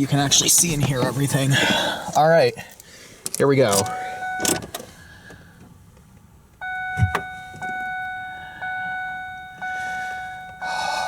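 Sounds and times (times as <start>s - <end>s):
dashboard warning chime: 3.8s - 4.7s, 6.6s - 11.0s.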